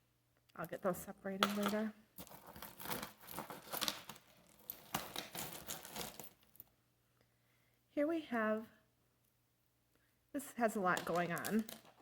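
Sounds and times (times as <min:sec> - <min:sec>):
rustling: 0:02.1 - 0:06.7.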